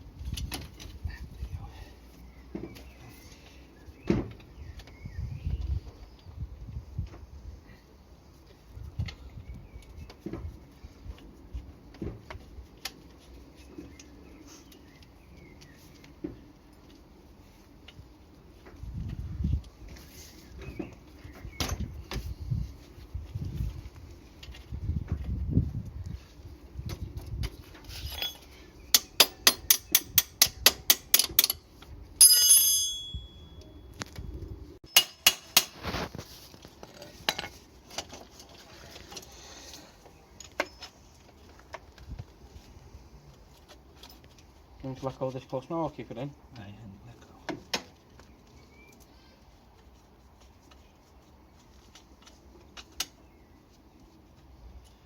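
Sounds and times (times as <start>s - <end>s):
tools and metal parts clicking: 27.8s - 33.7s, 34.9s - 35.9s
ringing metal clink: 28.0s - 31.6s, 32.2s - 33.9s, 34.9s - 35.7s.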